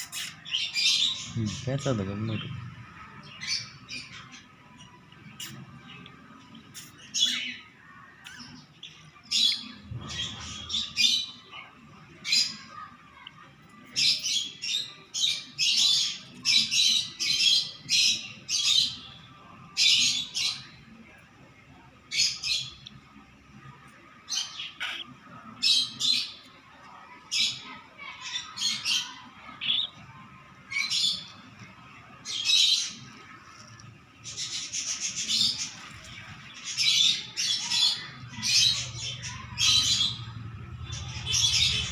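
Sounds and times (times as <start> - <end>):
baby cockatiel squawking: 24.8 - 25.0.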